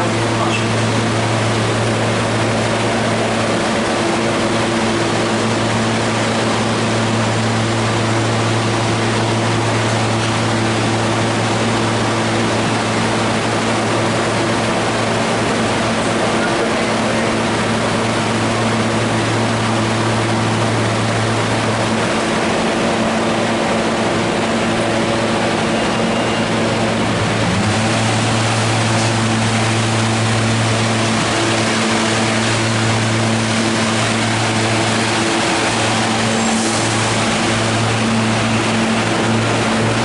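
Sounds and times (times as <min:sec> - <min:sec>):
train electrical hum: 0:00.0 - 0:40.0.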